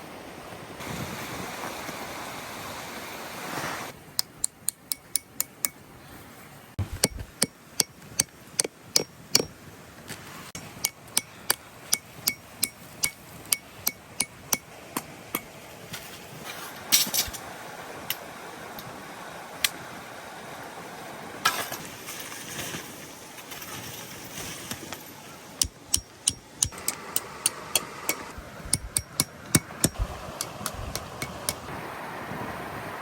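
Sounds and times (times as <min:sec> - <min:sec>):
sharp knocks and taps: 0:06.8 - 0:09.5.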